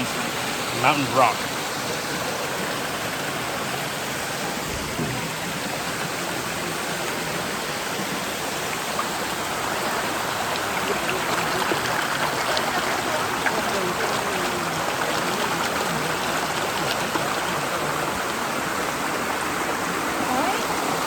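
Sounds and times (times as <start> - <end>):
water rushing in a stream: 0.0 - 21.0
low thump: 4.6 - 5.4.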